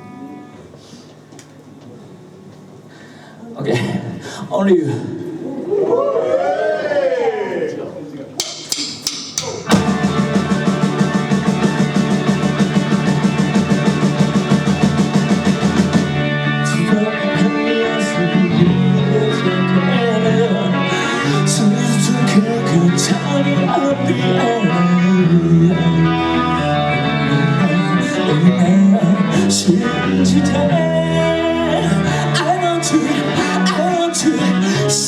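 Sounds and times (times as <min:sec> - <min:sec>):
electric guitar melody: 0:00.0 - 0:00.8, 0:09.4 - 0:35.0
cymbal crashes: 0:08.4 - 0:16.2
live rock band playing: 0:08.4 - 0:33.6.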